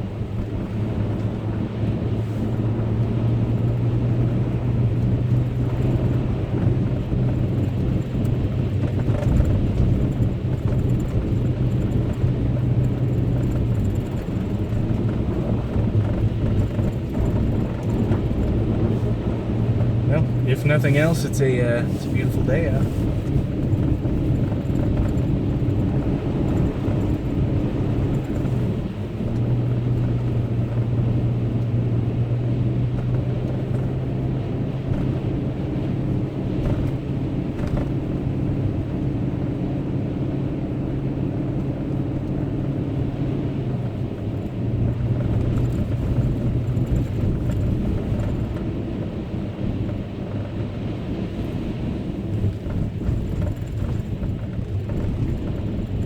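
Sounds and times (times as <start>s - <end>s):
truck engine drone: 0.0s - 56.0s
tyre road rumble: 0.0s - 56.0s.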